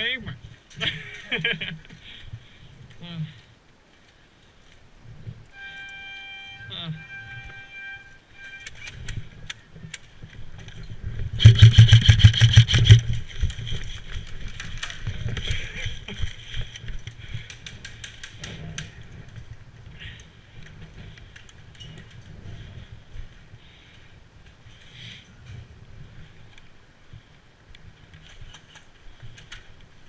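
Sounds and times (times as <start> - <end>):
airsoft gun firing full-auto burst: 11.4 - 13.1.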